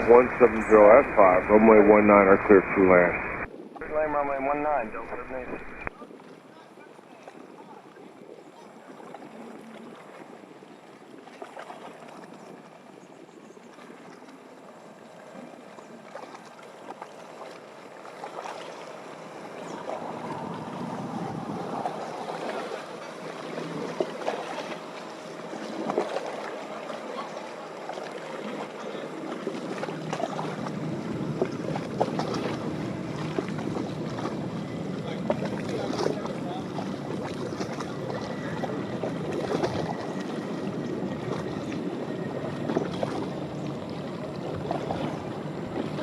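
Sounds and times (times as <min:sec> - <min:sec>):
jet airliner engine noise: 0:00.0 - 0:05.9, 0:19.2 - 0:27.3
wind noise on microphone: 0:20.1 - 0:22.2.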